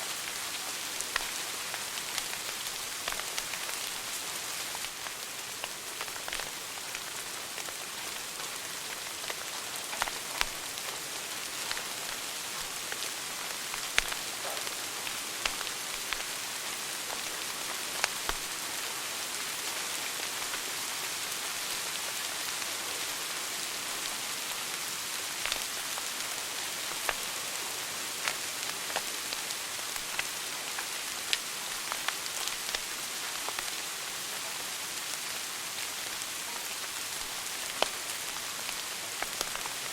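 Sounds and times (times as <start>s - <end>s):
wood fire crackling: 0.1s - 22.6s, 23.8s - 39.9s
fire popping: 1.0s - 17.4s, 28.2s - 33.7s, 37.2s - 39.9s.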